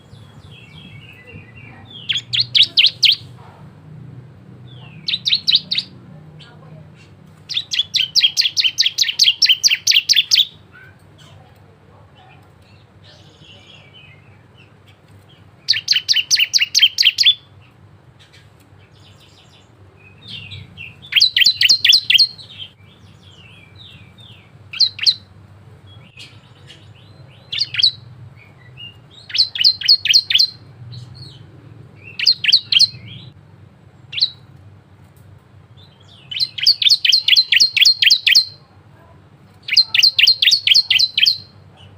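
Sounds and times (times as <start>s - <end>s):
bird singing sharp chip notes: 18.2s - 25.2s.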